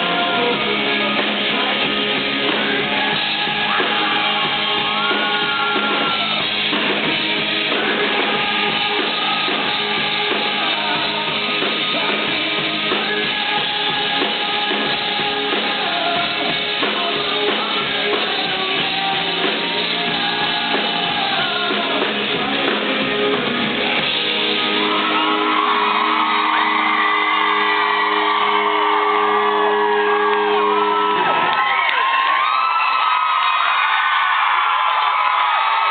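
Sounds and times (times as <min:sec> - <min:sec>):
man singing lead vocals: 0:00.0 - 0:26.4
electric guitars: 0:00.0 - 0:32.4
audience screaming and cheering: 0:00.0 - 0:35.9
drums: 0:00.0 - 0:35.9.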